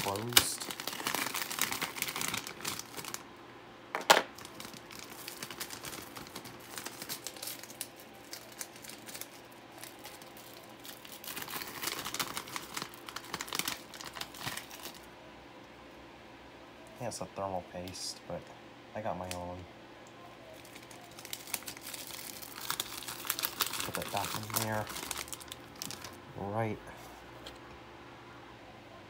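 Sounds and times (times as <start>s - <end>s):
plastic packaging crinkling: 0.0s - 3.3s, 4.0s - 15.1s, 20.6s - 26.2s.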